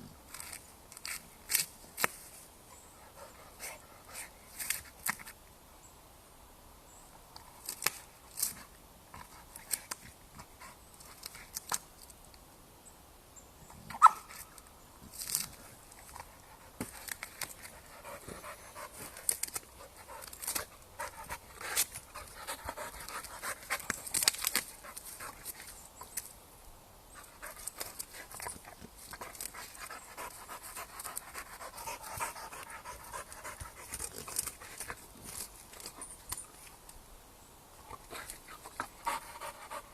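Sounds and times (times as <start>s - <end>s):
clicks and rustles: 7.4s - 12.4s, 13.9s - 26.4s, 27.2s - 37.0s
dog panting: 19.8s - 24.0s, 29.2s - 35.0s, 38.6s - 39.9s.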